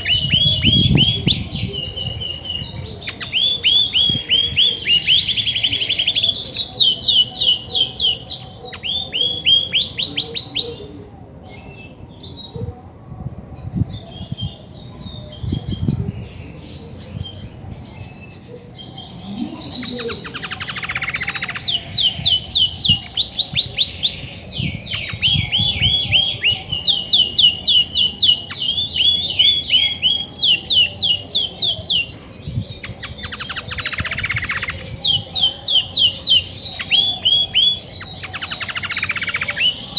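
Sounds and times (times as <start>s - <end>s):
canary singing: 0.0s - 12.4s, 14.0s - 39.9s.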